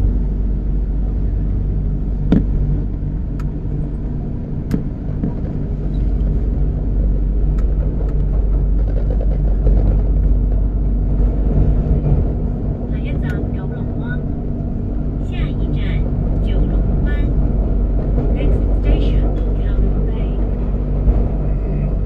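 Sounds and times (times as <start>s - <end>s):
train motor hum: 0.0s - 22.0s
wheels rumbling on rail: 0.0s - 22.0s.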